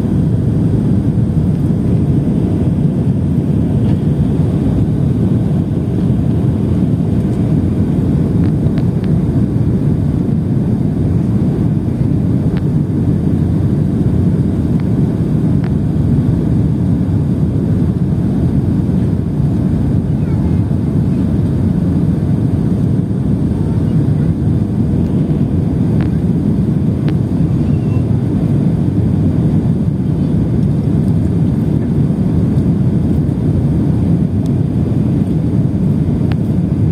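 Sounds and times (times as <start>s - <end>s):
airplane low rumble: 0.0s - 36.9s.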